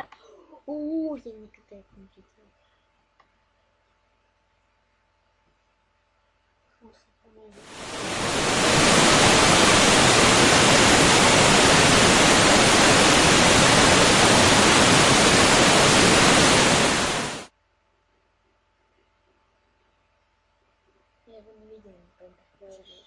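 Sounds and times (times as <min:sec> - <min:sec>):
waterfall rushing: 0:07.6 - 0:17.5.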